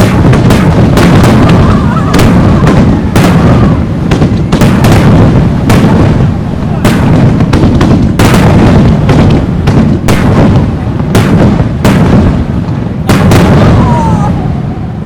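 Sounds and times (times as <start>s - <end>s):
falling firework whistle: 0.0s - 3.9s, 13.1s - 15.0s
fireworks booming: 0.0s - 15.0s
rumbling echo: 0.0s - 15.0s.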